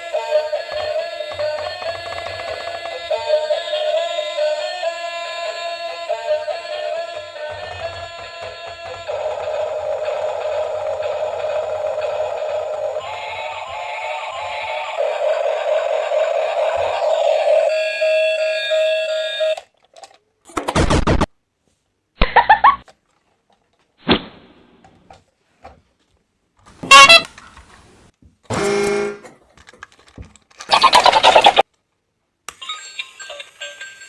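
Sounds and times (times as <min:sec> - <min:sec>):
horn-like toots: 0:26.8 - 0:27.3, 0:28.5 - 0:29.3.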